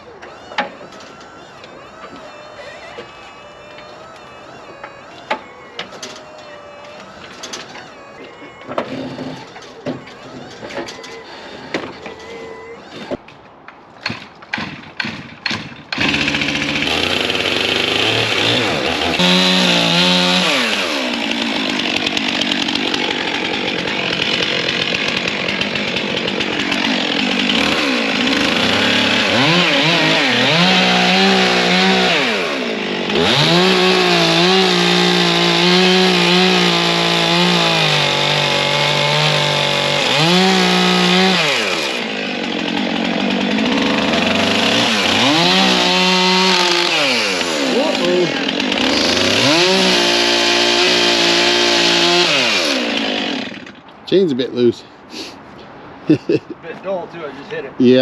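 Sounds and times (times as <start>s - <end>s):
chainsaw cutting log: 0.0s - 13.3s, 14.0s - 54.3s
chainsaw starter pulls: 0.0s - 13.3s, 14.0s - 54.1s.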